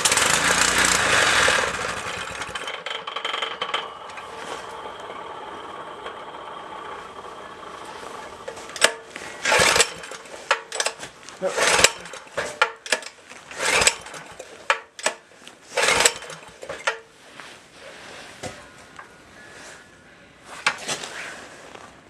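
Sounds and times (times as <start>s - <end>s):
recoil starter pull rasp: 0.0s - 4.8s, 8.4s - 17.1s
engine cranking: 0.0s - 17.1s.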